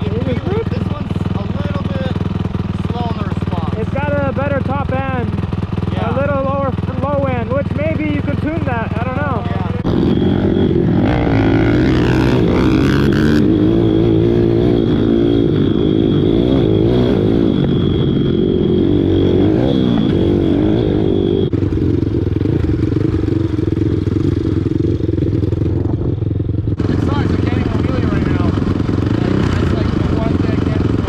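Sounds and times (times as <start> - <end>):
motorbike engine revving: 0.0 - 31.0
thin high whine: 9.7 - 21.5.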